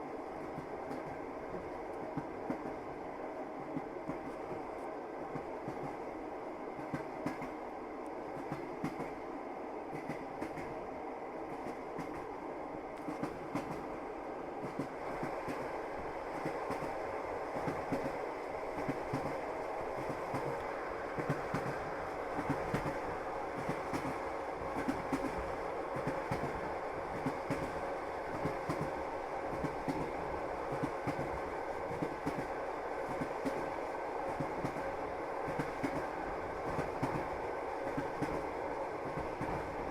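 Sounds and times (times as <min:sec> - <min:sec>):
train wheels rumbling on rails: 0:00.0 - 0:39.9
clacks at rail joints: 0:22.4 - 0:23.0.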